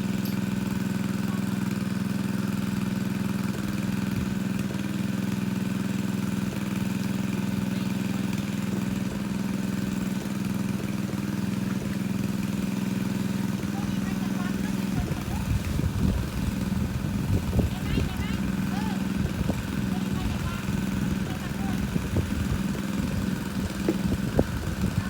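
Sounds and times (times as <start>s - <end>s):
water pump engine droning: 0.0s - 25.0s.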